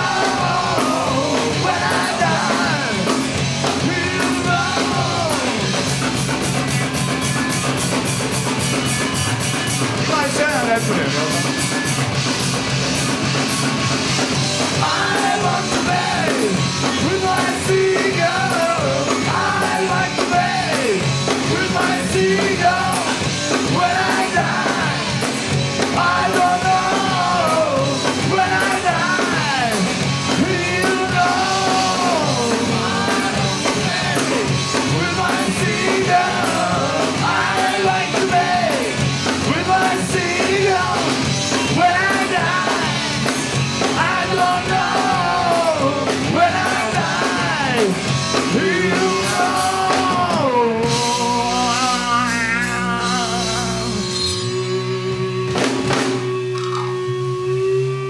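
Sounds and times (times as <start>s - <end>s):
loud rock music: 0.0s - 58.0s
person singing: 43.8s - 58.0s.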